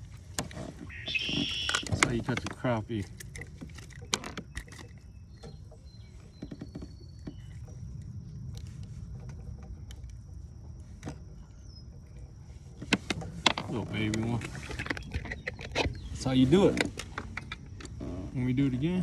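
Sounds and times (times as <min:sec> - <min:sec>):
steady low rumble: 0:07.1 - 0:14.6.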